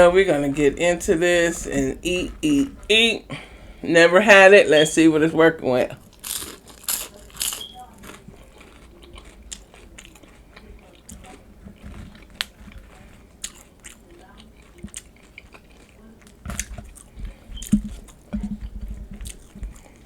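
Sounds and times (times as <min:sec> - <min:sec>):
crunchy chewing: 0:05.9 - 0:20.0.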